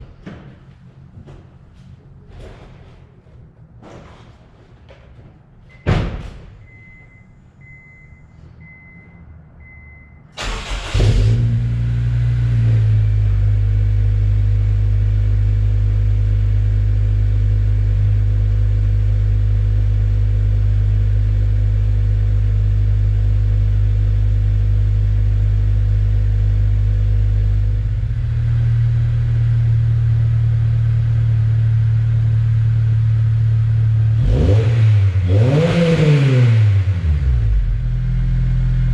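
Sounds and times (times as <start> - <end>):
car engine cranking and idling: 9.6 - 38.9.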